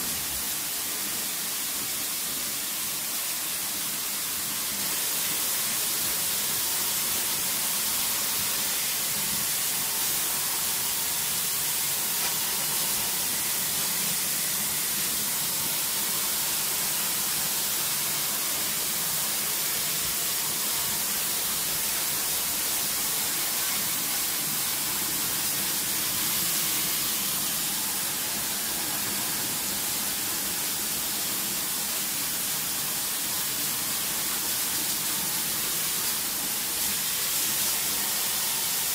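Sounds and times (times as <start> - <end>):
high-pressure water jet hissing: 0.0 - 38.9.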